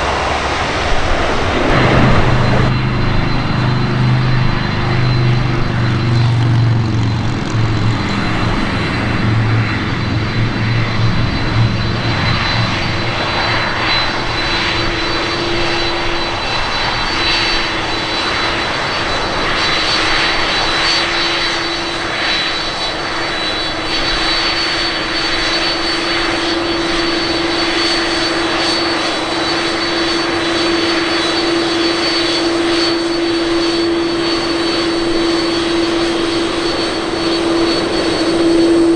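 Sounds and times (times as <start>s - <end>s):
deep rumble: 0.0s - 14.4s
high whine: 0.0s - 18.6s, 29.4s - 38.9s
jet engines running: 0.0s - 38.9s.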